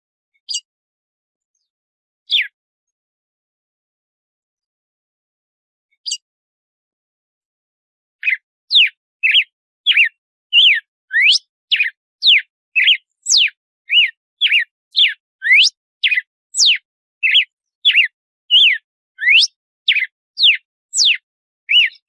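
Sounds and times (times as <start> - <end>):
bird whistling song: 0.4 - 0.7, 2.3 - 2.6, 8.2 - 22.0.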